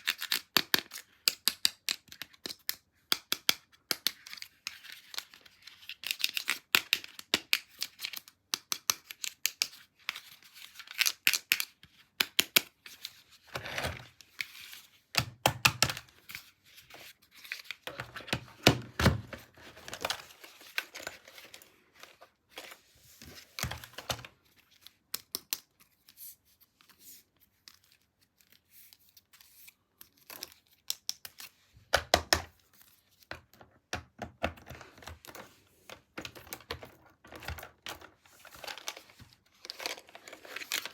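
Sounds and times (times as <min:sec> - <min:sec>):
plastic and paper crinkling: 0:16.0 - 0:25.1, 0:34.5 - 0:40.9.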